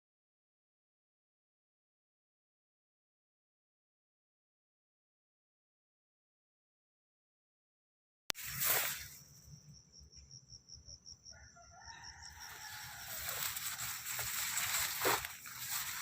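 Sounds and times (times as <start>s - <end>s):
rustling noise: 8.4s - 9.3s, 12.4s - 16.0s
insect trill: 8.4s - 16.0s
rooster crowing: 11.2s - 16.0s.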